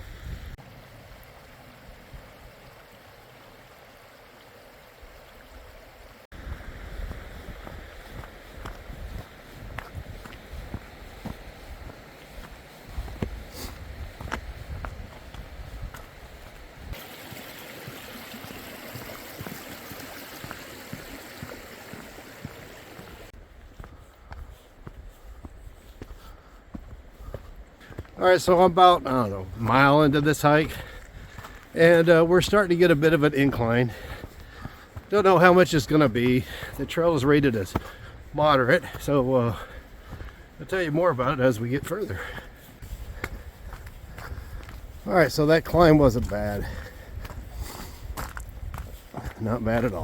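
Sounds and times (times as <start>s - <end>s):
creek rushing over rocks: 0.2s - 23.9s, 27.8s - 50.0s
wind buffeting microphone: 6.4s - 17.0s, 42.8s - 50.0s.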